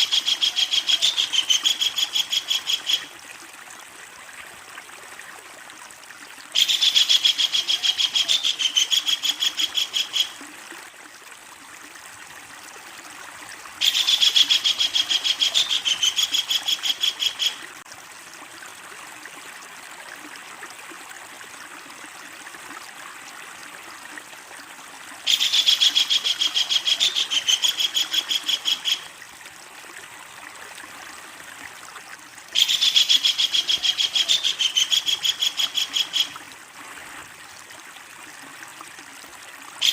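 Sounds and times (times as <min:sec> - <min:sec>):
kingfisher rattling call: 0:32.6 - 0:36.4.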